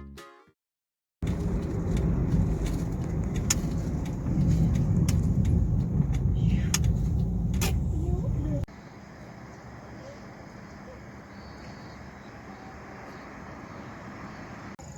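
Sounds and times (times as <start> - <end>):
car driving rumble: 1.2 - 14.9.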